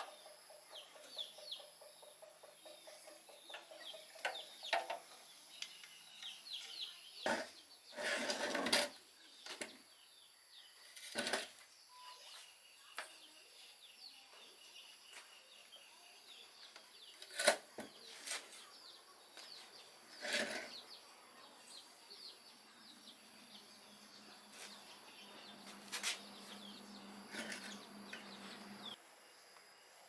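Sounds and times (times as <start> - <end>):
faint bird chirps: 8.9 - 29.0.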